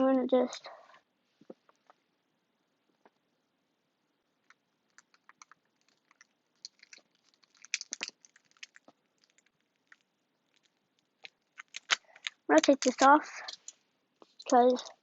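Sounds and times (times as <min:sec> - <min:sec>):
tape clicks and crinkles: 0:04.4 - 0:15.0.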